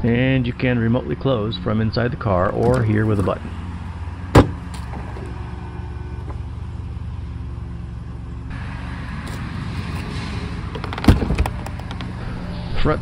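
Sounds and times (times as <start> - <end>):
car engine idling: 2.2 - 12.4.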